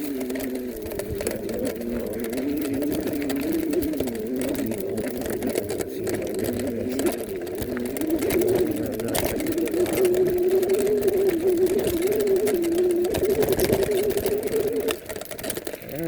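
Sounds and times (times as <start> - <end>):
electric bike motor whine: 0.0 - 16.0.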